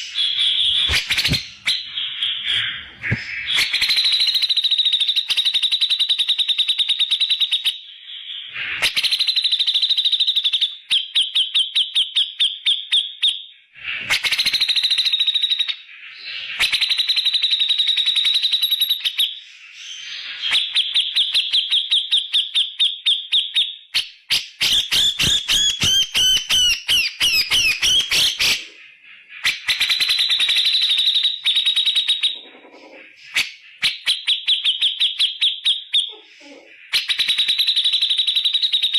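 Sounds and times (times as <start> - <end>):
bird singing sharp repeated notes: 0.0 - 15.8.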